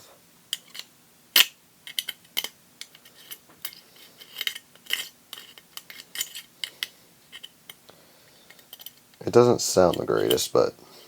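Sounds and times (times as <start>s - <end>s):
knife scraping glue off metal: 3.0s - 7.6s.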